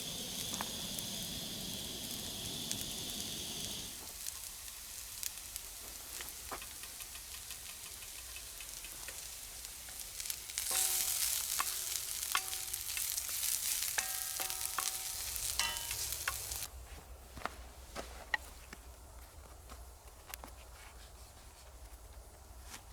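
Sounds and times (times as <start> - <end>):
food sizzling in a pan: 0.0 - 16.7.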